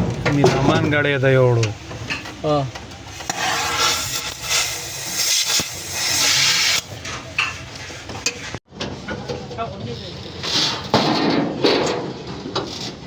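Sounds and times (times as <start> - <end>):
rough hissing rubbing noise: 3.1 - 8.6.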